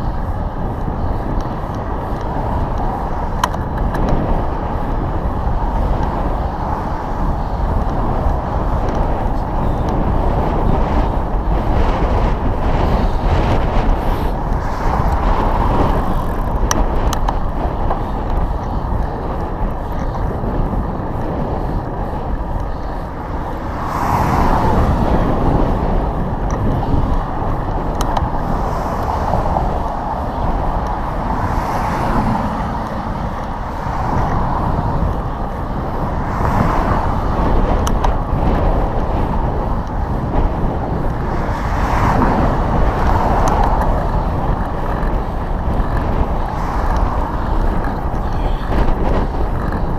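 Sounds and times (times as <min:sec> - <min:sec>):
vehicles passing: 0:00.0 - 0:49.9
wind on microphone: 0:00.0 - 0:49.9.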